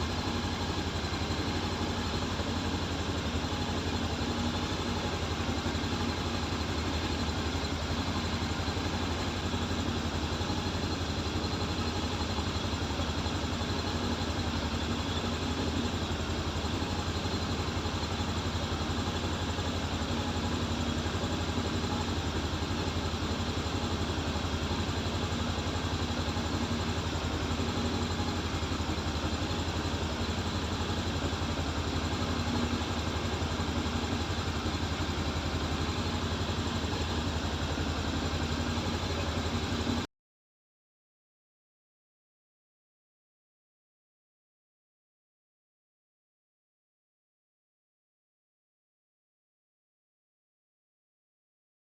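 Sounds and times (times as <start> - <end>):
motorcycle engine idling: 0.0 - 40.1.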